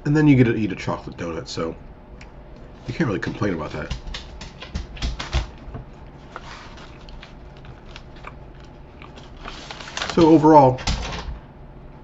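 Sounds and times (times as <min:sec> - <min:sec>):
person chewing crunchy food: 0:05.9 - 0:09.6.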